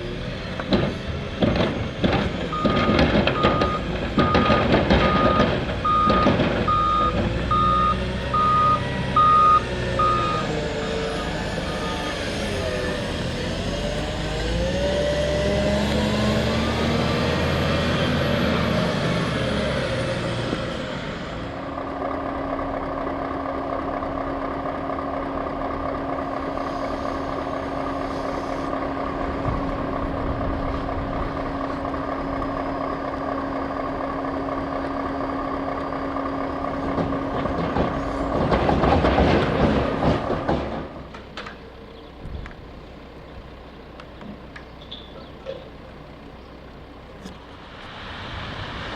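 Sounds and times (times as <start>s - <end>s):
diesel engines revving: 0.0s - 48.9s
engine whine: 0.0s - 48.9s
rush of noise: 47.5s - 48.9s.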